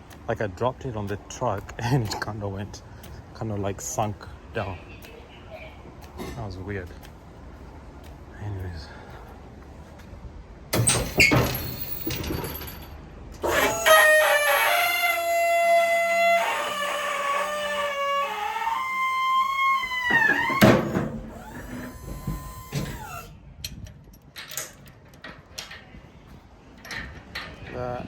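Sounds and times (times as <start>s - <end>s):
metallic squealing: 13.4s - 23.3s
steady machine whine: 18.7s - 23.3s.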